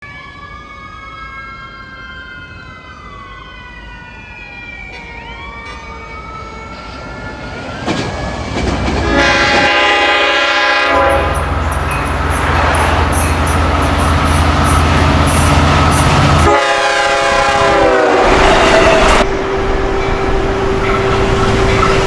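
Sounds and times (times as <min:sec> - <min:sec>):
diesel locomotive rumble: 0:04.9 - 0:22.0
train horn blast: 0:09.0 - 0:22.0.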